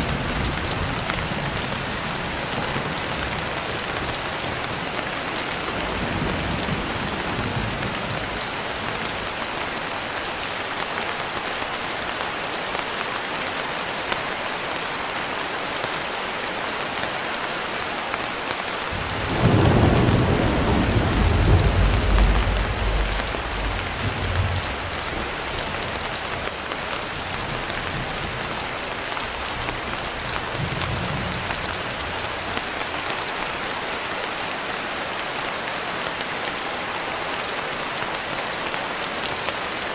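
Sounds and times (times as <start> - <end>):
heavy rain hissing: 0.0 - 39.9
thunder rumbling: 18.9 - 26.6.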